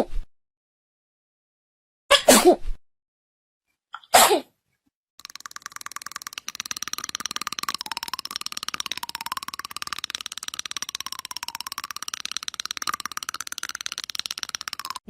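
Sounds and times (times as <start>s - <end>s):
person sneezing: 4.1s - 4.5s
music with fast ticking beat: 5.2s - 15.0s.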